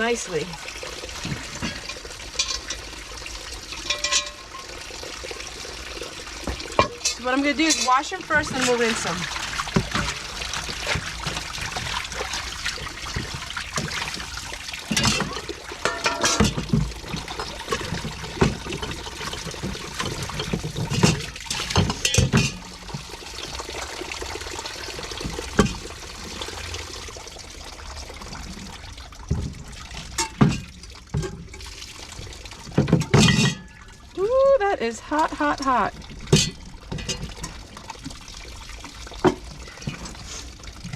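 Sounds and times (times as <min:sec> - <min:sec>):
water sloshing in a basin: 0:00.0 - 0:40.9
dishes knocking: 0:14.9 - 0:16.9.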